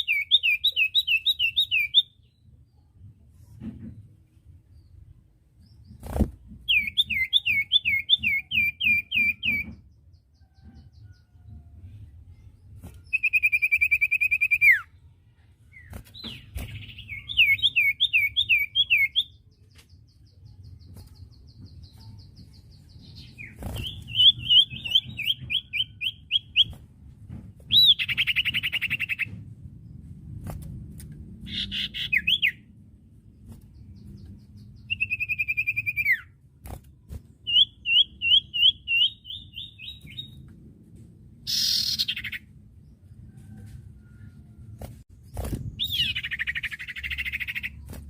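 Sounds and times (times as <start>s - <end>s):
bird whistling song: 0.0s - 2.4s, 6.7s - 9.8s, 13.0s - 14.9s, 16.2s - 19.4s, 21.8s - 26.8s, 27.7s - 29.3s, 31.5s - 32.6s, 34.6s - 36.3s, 37.5s - 40.4s, 41.5s - 42.4s, 45.8s - 47.9s
bird trill: 31.5s - 32.6s, 41.5s - 42.4s, 45.8s - 47.9s.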